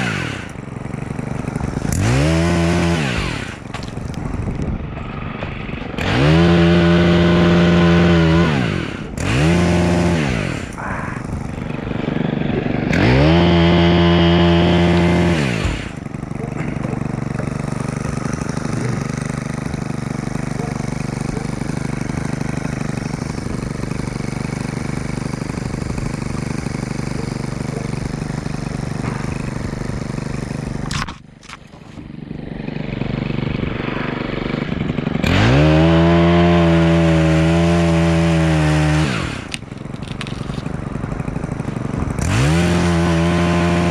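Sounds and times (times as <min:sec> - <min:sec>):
two-stroke saw engine revving: 0:00.0 - 0:43.9.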